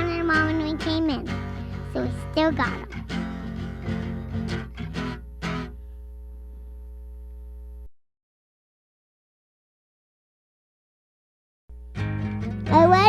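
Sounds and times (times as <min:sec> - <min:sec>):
guitar plucked notes: 0:00.0 - 0:05.9, 0:11.7 - 0:13.0
low electrical hum: 0:00.0 - 0:07.9, 0:11.7 - 0:13.0.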